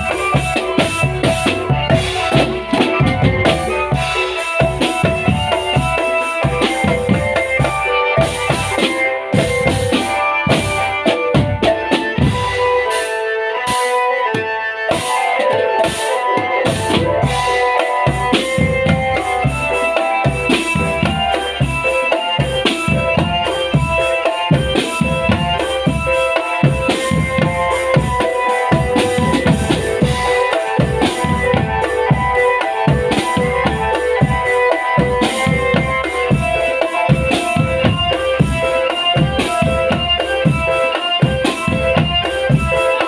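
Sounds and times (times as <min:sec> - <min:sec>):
melody of held notes: 0:00.0 - 0:43.0
snare and bass drums: 0:00.0 - 0:43.0.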